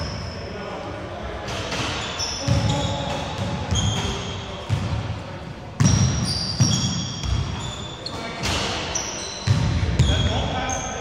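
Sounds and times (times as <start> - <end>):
sneaker squeaks: 0.0 - 0.6, 1.5 - 5.0, 5.8 - 11.0.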